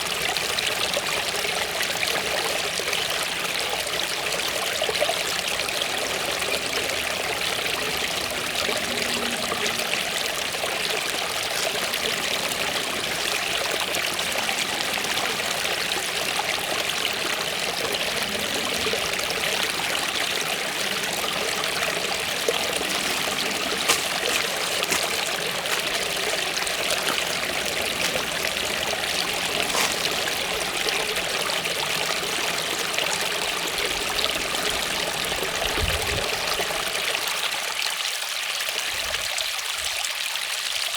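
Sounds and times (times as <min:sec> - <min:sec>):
waterfall rushing: 0:05.2 - 0:37.3.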